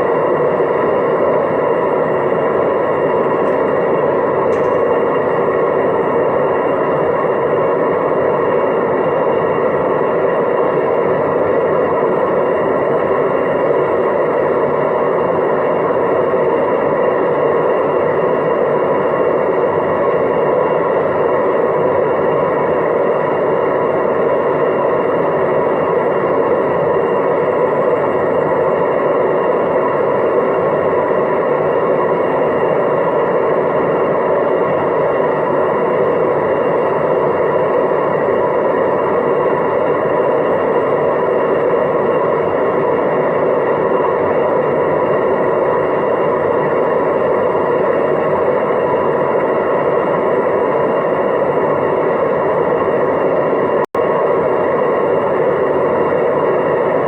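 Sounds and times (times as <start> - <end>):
washing machine spinning: 0.0 - 57.0.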